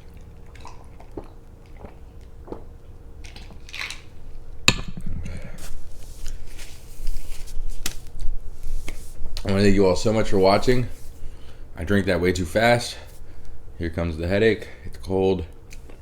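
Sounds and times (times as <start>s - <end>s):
person gulping and swallowing: 0.0s - 4.0s.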